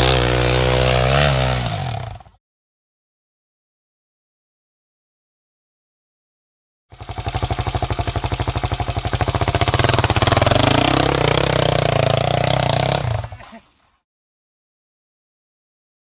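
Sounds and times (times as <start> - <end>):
off-road motorcycle engine running: 0.0 - 2.4, 6.9 - 13.5.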